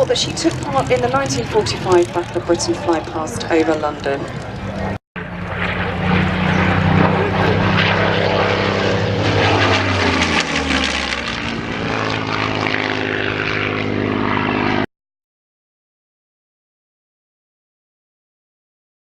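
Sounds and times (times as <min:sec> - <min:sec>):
propeller plane flying past: 0:00.0 - 0:14.9.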